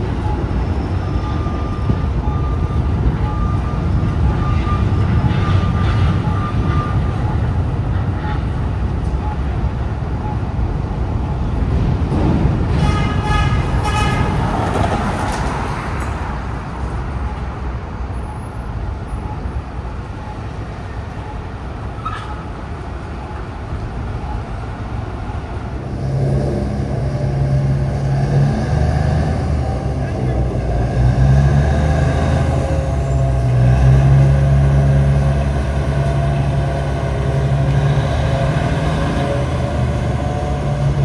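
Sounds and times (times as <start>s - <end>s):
subway cars rumbling on tracks: 0.0s - 41.0s
train horn blowing: 12.7s - 14.5s
diesel engine humming: 16.2s - 41.0s.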